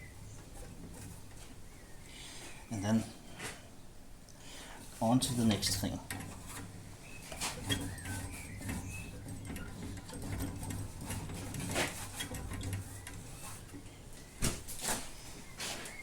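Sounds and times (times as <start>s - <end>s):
light handling noises: 5.2s - 16.0s.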